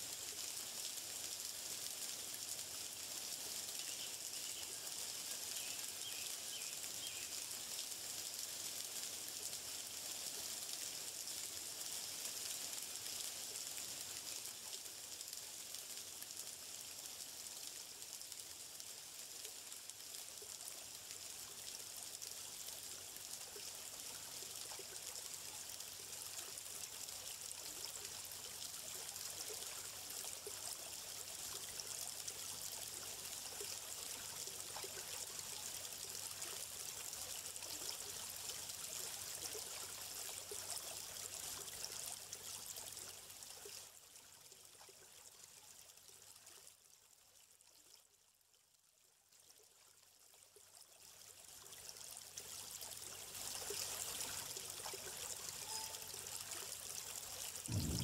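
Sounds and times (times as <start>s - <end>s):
stream water flowing: 0.0s - 46.6s, 51.1s - 58.0s.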